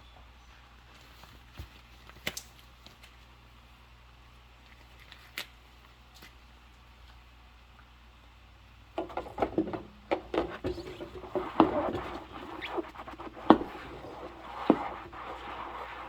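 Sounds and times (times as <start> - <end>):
dishware knocking: 9.0 - 12.6
rubber gloves squeaking on dishes: 9.0 - 16.0.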